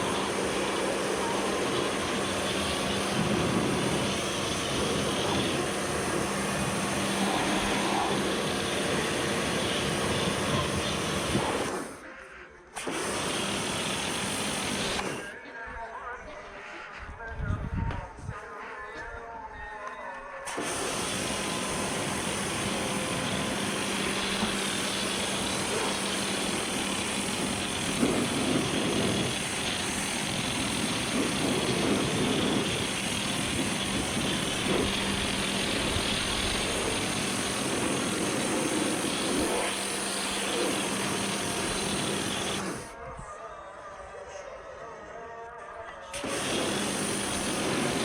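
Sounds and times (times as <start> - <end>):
low hum of pressure washer: 0.0 - 12.0, 12.8 - 15.3, 20.5 - 43.0, 46.1 - 48.0
pressure washer water jet hissing: 0.0 - 12.0, 12.8 - 15.3, 20.5 - 42.9, 46.2 - 48.0.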